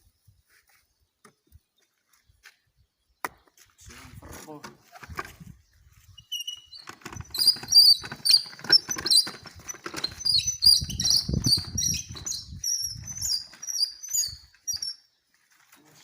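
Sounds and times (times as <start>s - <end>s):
small animal squeaks and chirps: 6.1s - 15.0s.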